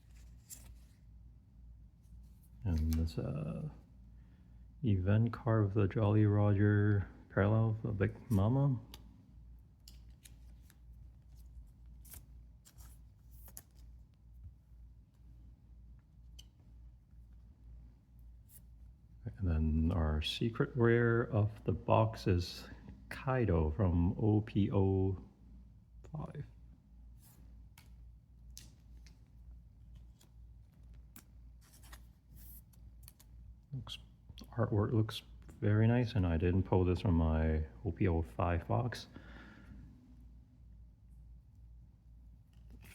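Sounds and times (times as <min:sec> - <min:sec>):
trading cards swishing and clicking: 0:00.0 - 0:01.0, 0:08.1 - 0:09.1, 0:09.8 - 0:14.2, 0:27.2 - 0:33.4
steady low hum: 0:00.0 - 0:42.9.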